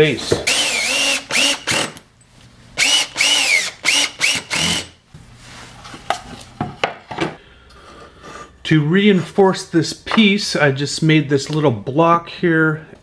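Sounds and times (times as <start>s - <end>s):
power drill whining: 0.3s - 2.0s, 2.8s - 5.0s.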